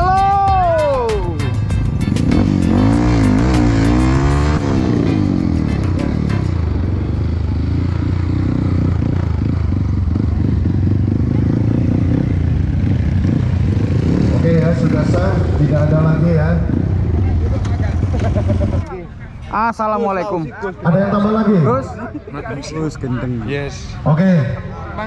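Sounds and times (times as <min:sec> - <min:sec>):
motorcycle engines revving: 0:01.6 - 0:19.6.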